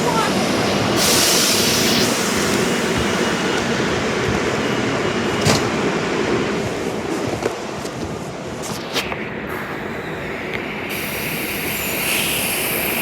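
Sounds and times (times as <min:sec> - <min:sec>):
electric train rumble: 0:00.0 - 0:13.0
air hiss: 0:00.4 - 0:04.0, 0:10.9 - 0:13.0.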